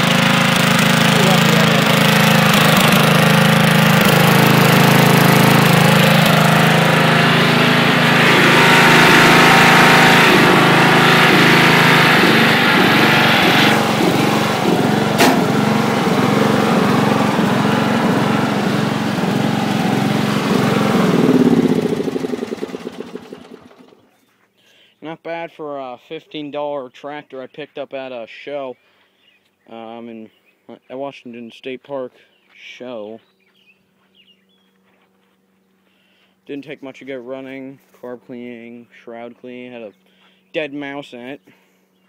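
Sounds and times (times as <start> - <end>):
lawn tractor engine running: 0.0 - 24.1.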